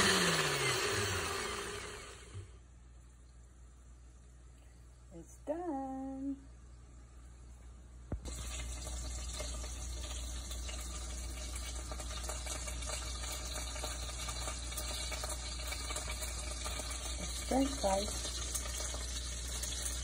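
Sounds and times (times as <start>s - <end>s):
sausages sizzling in a frying pan: 8.2s - 20.0s.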